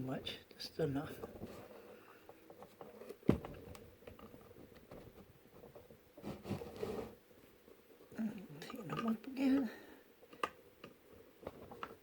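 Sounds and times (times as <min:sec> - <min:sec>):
scraping rustle: 0:04.3 - 0:07.8.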